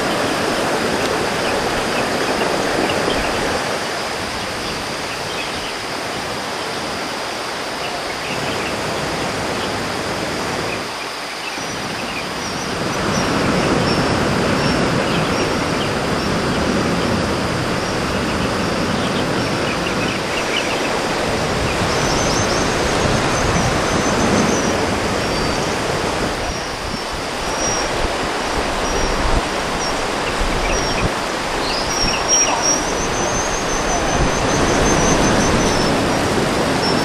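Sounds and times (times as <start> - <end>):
steady rushing outdoor noise: 0.0 - 37.0
faint bird chirps: 28.8 - 36.0.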